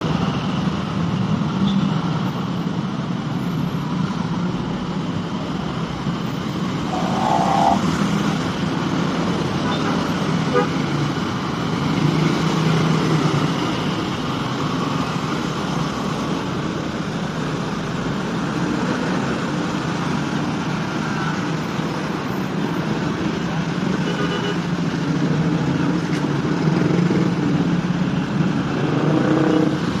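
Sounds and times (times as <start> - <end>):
road and traffic noise: 0.0 - 30.0
bus diesel engine drone: 2.7 - 21.0.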